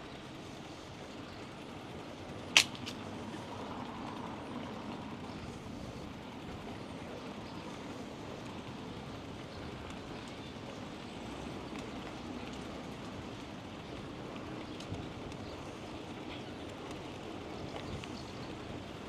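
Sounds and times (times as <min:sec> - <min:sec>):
bicycle tyres on pavement: 0:00.0 - 0:19.0
faint ticks: 0:11.4 - 0:18.5.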